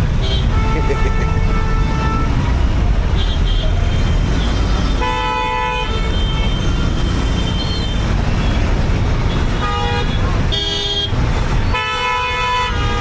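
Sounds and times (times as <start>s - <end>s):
engine and traffic rumble: 0.0s - 13.0s
vehicle horn honk: 0.2s - 2.3s.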